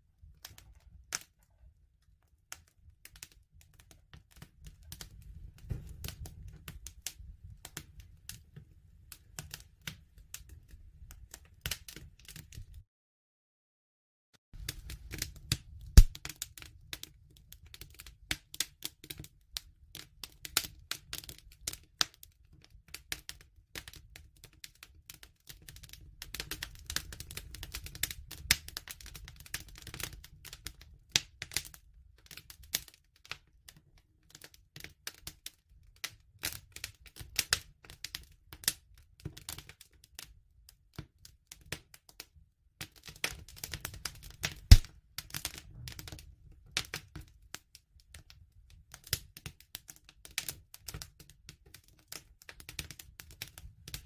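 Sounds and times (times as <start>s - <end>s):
wood fire crackling and popping: 0.2s - 12.8s, 14.6s - 42.0s, 42.8s - 54.0s.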